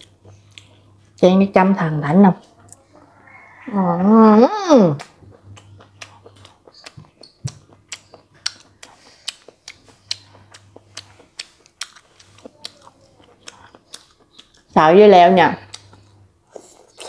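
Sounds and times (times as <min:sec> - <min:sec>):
crunchy chewing: 0:05.0 - 0:14.7.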